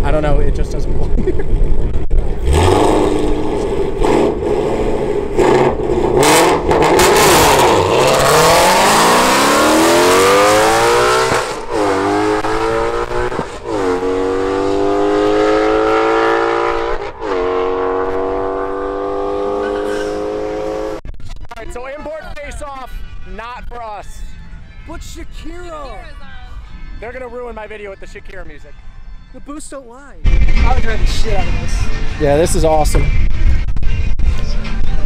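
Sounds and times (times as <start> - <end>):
car engine at full throttle: 0.4 - 21.0.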